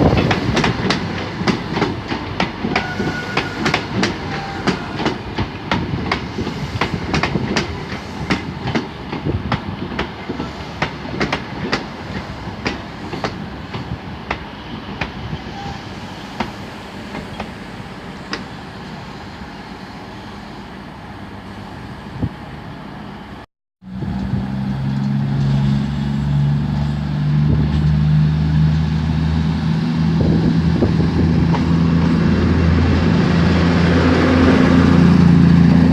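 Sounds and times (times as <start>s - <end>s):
train wheels clicking over rail joints: 0.0s - 15.5s
train rumble: 0.0s - 35.9s.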